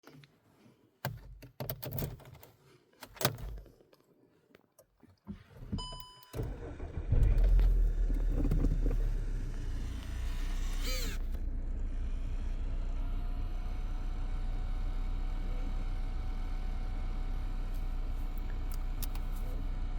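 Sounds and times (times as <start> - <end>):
car engine rumbling: 5.3 - 19.9.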